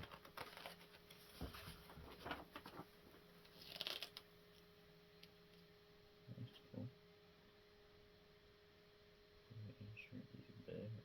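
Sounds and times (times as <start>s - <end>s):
packaging rustle: 0.0s - 2.9s, 3.6s - 4.2s.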